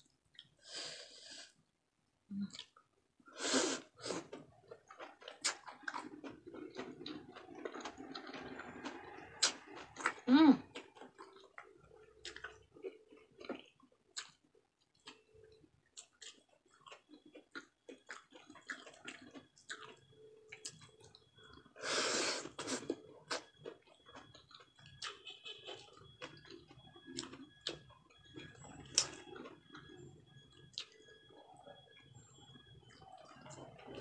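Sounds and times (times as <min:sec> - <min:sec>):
chewing: 0:02.4 - 0:02.9, 0:03.8 - 0:34.0
lip smacks and mouth clicks: 0:13.5 - 0:14.4.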